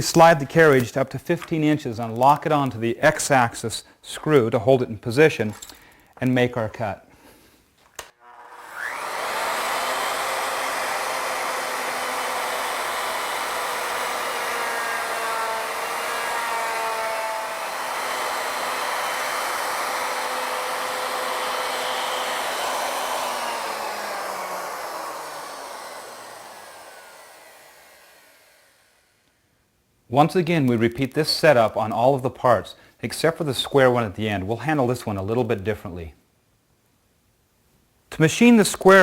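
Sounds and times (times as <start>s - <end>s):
router spinning and cutting wood: 8.2s - 29.4s.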